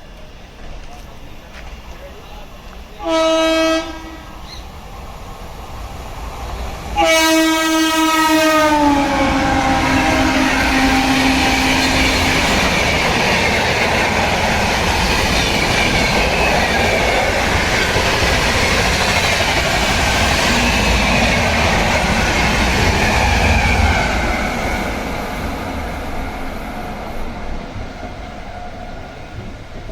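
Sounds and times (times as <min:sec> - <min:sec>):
train rushing and rumbling: 0:00.0 - 0:29.9
train horn: 0:03.0 - 0:04.4, 0:07.0 - 0:12.7
wheels clickety-clack: 0:11.8 - 0:23.9.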